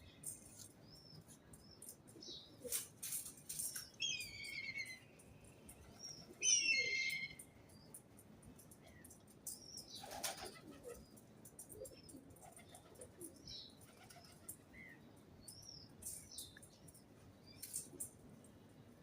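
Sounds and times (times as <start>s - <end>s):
birds flapping wings: 10.0s - 11.0s.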